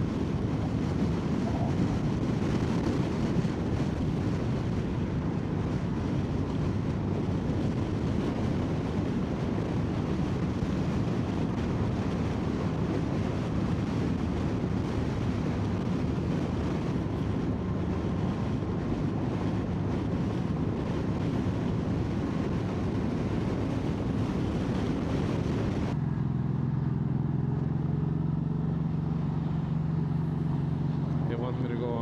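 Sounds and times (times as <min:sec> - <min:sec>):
wind rush on microphone: 0:00.0 - 0:26.2, 0:28.0 - 0:32.0
motorcycle engine running: 0:00.0 - 0:32.0.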